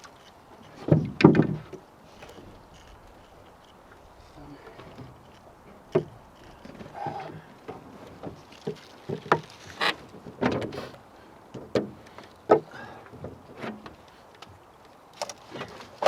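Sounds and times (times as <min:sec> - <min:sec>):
boat knocking against a post: 0:00.8 - 0:01.8, 0:04.8 - 0:10.8, 0:11.6 - 0:14.0.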